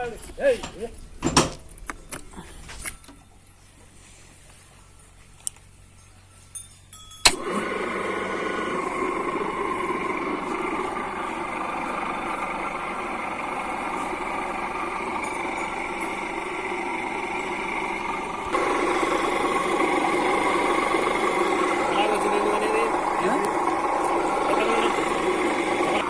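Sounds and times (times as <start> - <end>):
pump motor running: 7.3 - 26.0.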